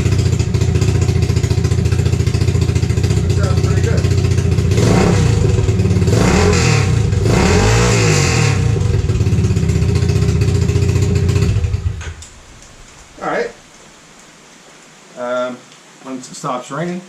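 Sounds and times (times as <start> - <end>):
motorbike engine idling and revving: 0.0 - 13.2.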